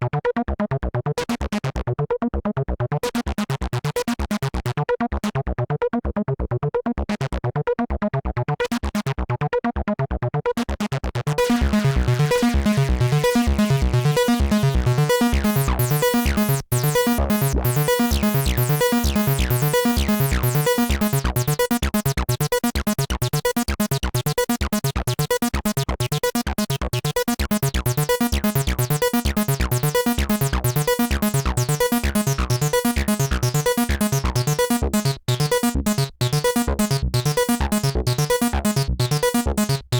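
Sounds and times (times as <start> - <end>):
synthesizer bass line: 11.2 - 39.9.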